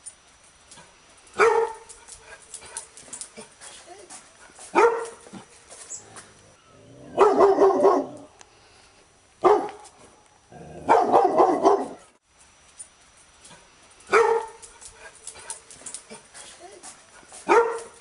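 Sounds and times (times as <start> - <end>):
dog barking: 1.4 - 1.9, 4.7 - 5.2, 7.2 - 8.3, 9.4 - 9.8, 10.8 - 12.1, 14.1 - 14.6, 17.4 - 18.0.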